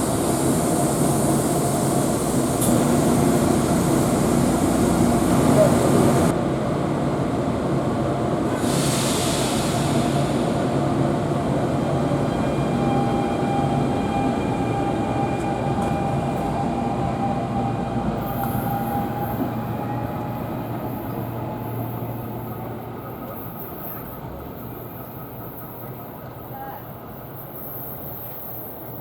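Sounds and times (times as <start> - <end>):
train rumbling past: 0.0 - 29.0.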